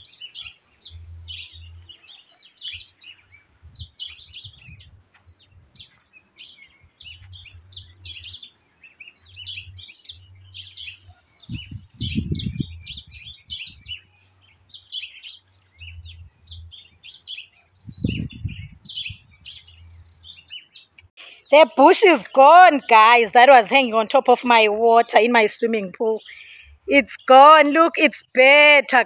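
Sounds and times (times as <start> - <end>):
small birds chirping: 0.0 - 29.0
low rumbling noise: 11.5 - 14.0, 17.8 - 20.3.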